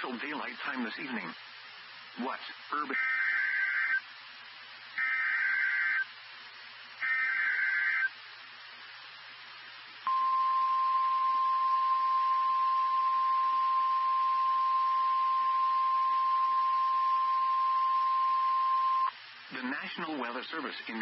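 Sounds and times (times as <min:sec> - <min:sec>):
faint radio hiss: 0:00.0 - 0:21.0
steady high alarm tone: 0:07.0 - 0:08.1, 0:10.1 - 0:19.1.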